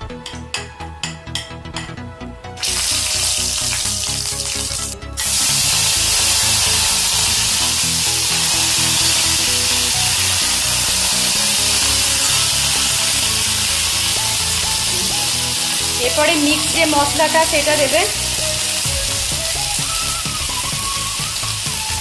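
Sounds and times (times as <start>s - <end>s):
background music: 0.0s - 22.0s
hot oil sizzling: 2.6s - 22.0s.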